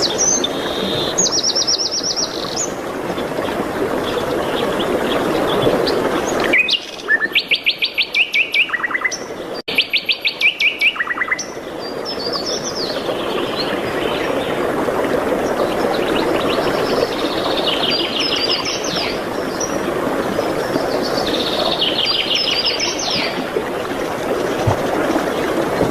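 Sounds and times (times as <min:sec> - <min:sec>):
loud rapid bird song: 0:15.9 - 0:19.8, 0:20.7 - 0:23.4.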